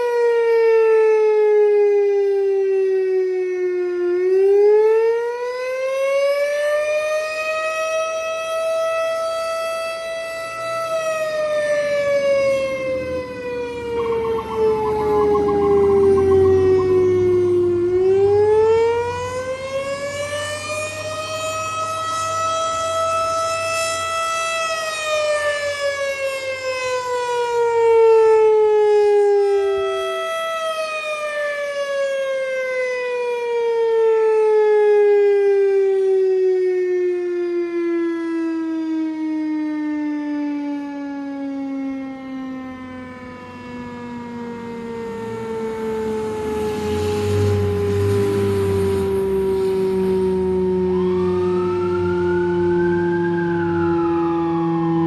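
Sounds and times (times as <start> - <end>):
fire truck siren wailing: 0.0 - 55.0
low engine rumble: 11.7 - 18.8.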